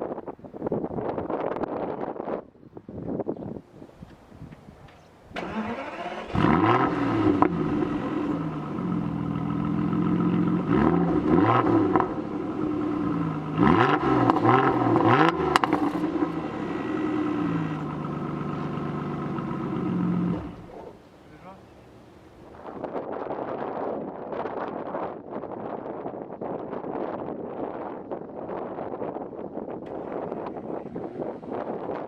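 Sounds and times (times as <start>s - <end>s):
car engine starting: 5.3s - 21.1s, 29.8s - 32.0s
engine revving in short blips: 5.4s - 9.0s, 13.0s - 16.7s, 29.9s - 32.0s
engine idling: 14.5s - 21.4s, 29.9s - 32.0s.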